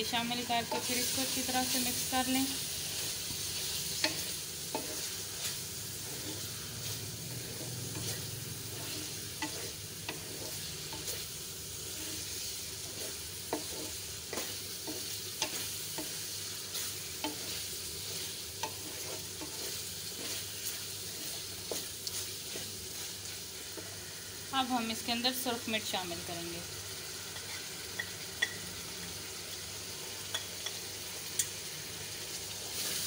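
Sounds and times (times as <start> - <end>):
chicken sizzling in oil: 0.0 - 33.0
spatula scraping pan: 0.2 - 24.0, 27.3 - 28.1.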